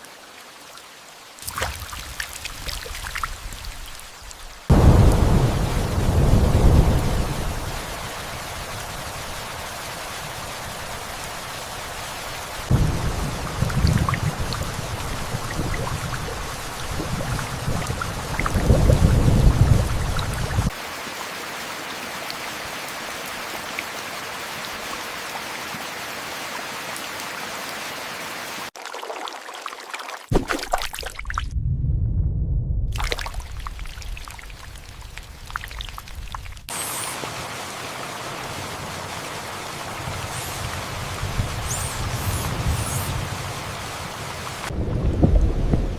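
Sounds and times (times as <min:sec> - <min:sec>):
heavy rain: 0:00.0 - 0:28.7, 0:33.0 - 0:45.9
thunder rolling: 0:04.7 - 0:09.4, 0:12.7 - 0:20.7, 0:31.5 - 0:37.4, 0:38.4 - 0:45.9.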